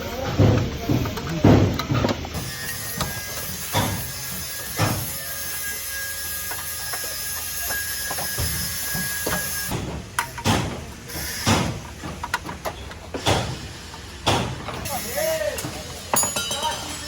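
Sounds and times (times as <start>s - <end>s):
workshop hiss: 0.0s - 17.0s
knocks and clattering on car: 0.3s - 2.2s, 9.7s - 14.8s.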